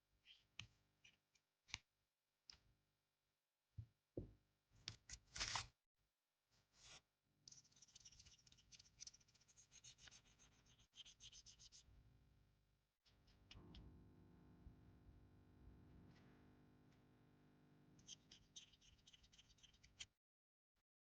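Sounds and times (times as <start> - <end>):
light scratching strokes: 6.8 - 11.9, 18.0 - 20.1.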